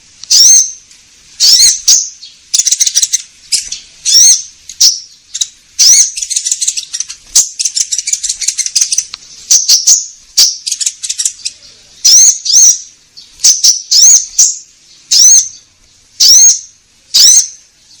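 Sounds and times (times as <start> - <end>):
high arching bird chirps: 0.2 - 18.0
fast chattering bird trill: 0.3 - 0.8, 1.4 - 15.6, 16.2 - 17.6.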